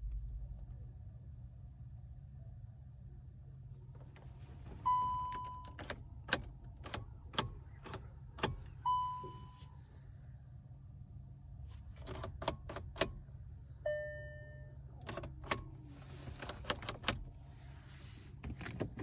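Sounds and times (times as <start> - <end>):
electronic warning chime: 8.9 - 9.6, 13.9 - 14.7.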